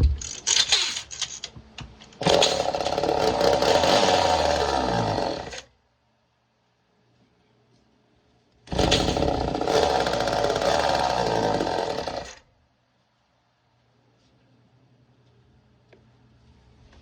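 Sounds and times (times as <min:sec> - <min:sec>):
chainsaw engine running: 0:02.2 - 0:05.7, 0:08.7 - 0:12.4.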